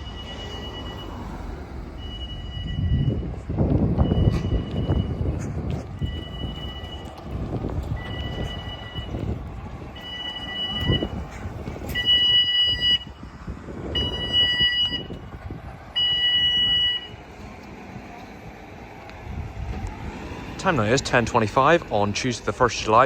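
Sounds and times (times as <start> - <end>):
level crossing warning alarm: 0.0 - 13.3, 13.9 - 17.4
low road traffic rumble: 0.0 - 23.0.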